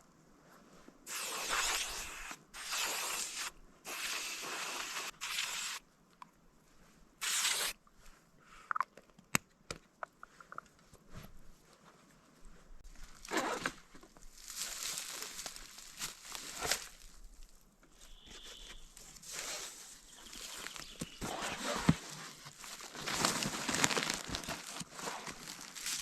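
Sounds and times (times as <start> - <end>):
aerosol spray hissing: 1.1 - 5.8, 7.2 - 7.7.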